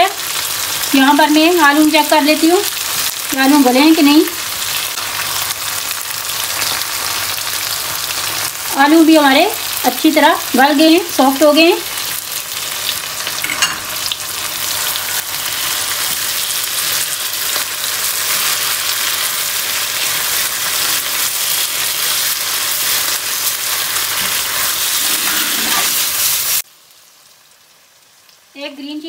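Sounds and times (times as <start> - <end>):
vegetables sizzling in pan: 0.0 - 29.0
spatula stirring vegetables: 13.4 - 26.6.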